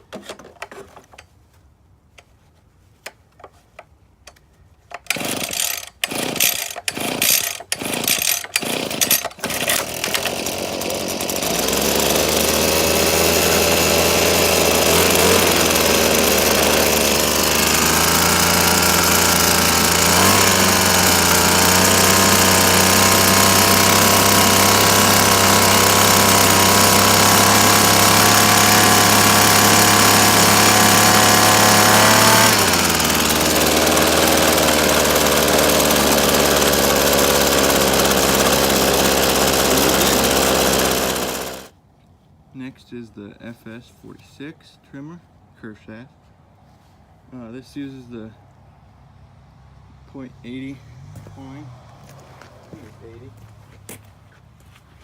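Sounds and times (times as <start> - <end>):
small two-stroke engine starting: 5.0 - 41.7.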